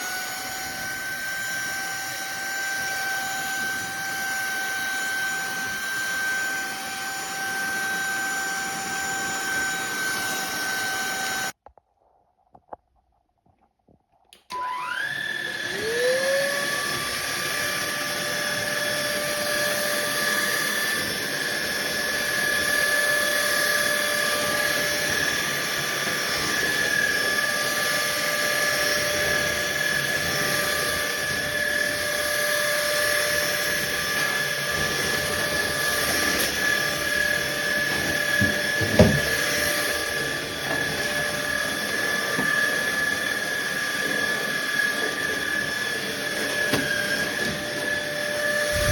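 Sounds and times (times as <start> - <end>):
vacuum motor whining: 0.0 - 11.6, 14.4 - 48.9
short thump: 38.4 - 39.4.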